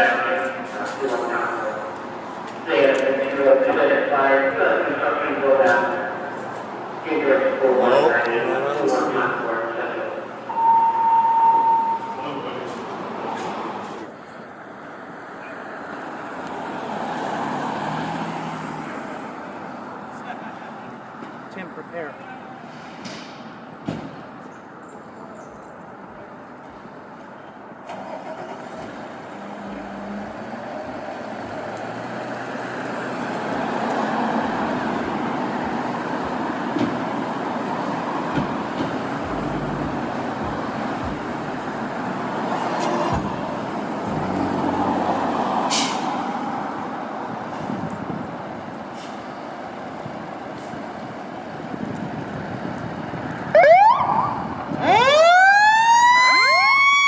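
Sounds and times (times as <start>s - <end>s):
diesel engine running: 27.9s - 42.5s.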